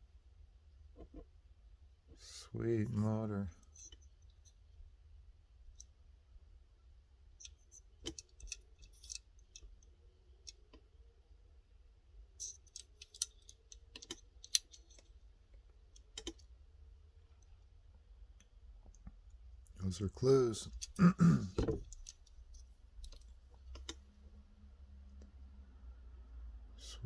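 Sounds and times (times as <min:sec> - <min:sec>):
toy car clicks and taps: 0:07.4 - 0:09.7, 0:12.4 - 0:15.1.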